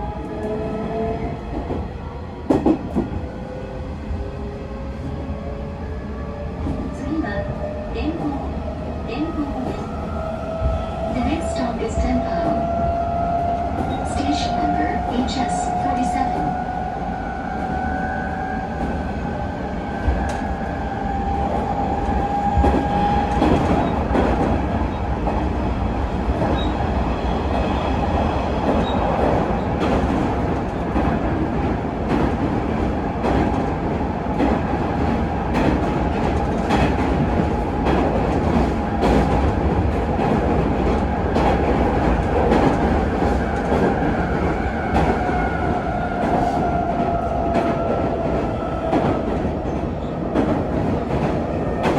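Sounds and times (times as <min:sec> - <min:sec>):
rail joint clacks: 0:21.4 - 0:25.4, 0:28.6 - 0:51.9.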